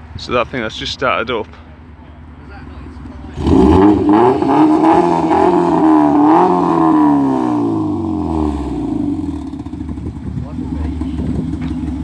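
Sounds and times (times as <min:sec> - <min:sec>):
car engine revving: 0:03.1 - 0:12.0.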